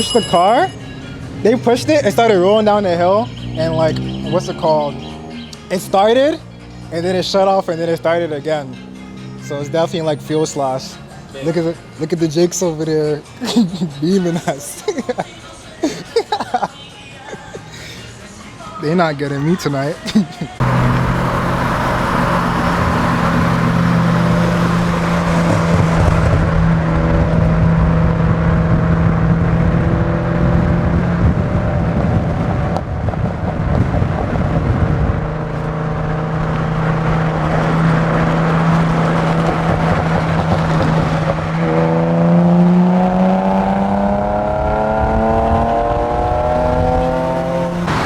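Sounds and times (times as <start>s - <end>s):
road noise: 0.0s - 48.0s
car engine running: 20.6s - 48.0s.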